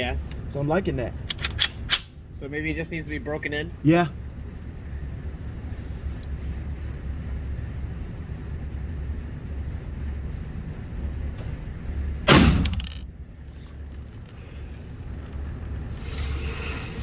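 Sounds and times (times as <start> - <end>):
steady low rumble: 0.0 - 17.0
gunshot: 12.3 - 13.0.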